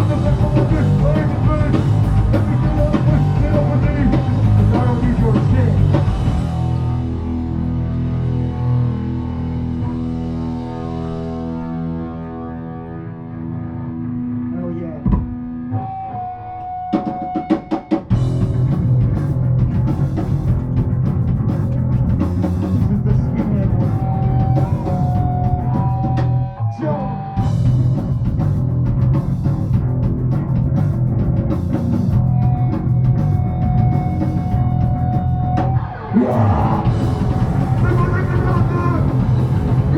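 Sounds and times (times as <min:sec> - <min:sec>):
rock band playing live: 0:00.0 - 0:39.9
drum hits: 0:15.0 - 0:15.4, 0:36.5 - 0:39.9.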